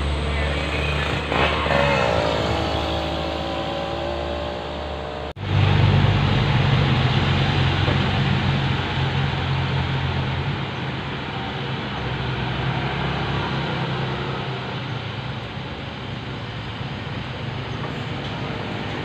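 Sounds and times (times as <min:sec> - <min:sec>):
low engine drone: 0:00.0 - 0:19.0
truck engine slowing: 0:00.0 - 0:19.0.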